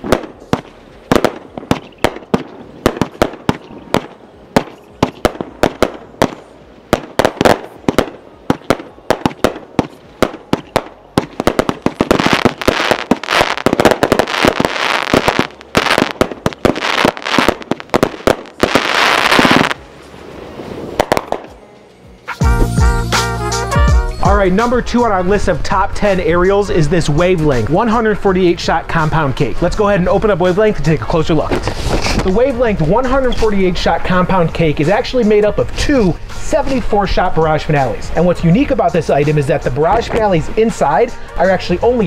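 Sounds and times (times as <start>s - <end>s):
firework shot reports and breaks: 0.0s - 19.8s, 20.6s - 21.6s
firework crackling: 0.0s - 21.6s.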